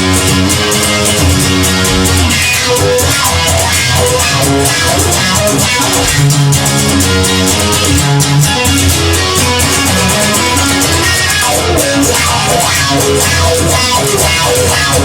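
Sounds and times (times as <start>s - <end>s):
instrumental rock music: 0.0s - 15.0s.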